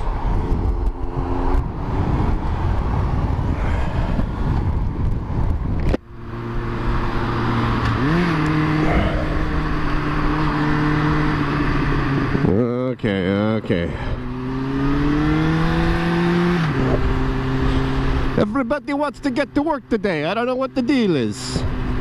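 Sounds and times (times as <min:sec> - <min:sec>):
wind noise on microphone: 0:00.0 - 0:07.2, 0:07.8 - 0:12.6, 0:14.0 - 0:18.4
motorcycle engine running: 0:00.0 - 0:22.0.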